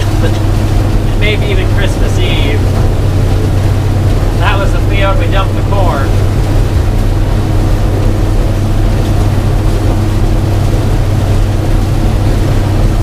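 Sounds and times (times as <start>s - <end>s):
combine engine drone: 0.0s - 13.0s
corn head running: 0.0s - 13.0s.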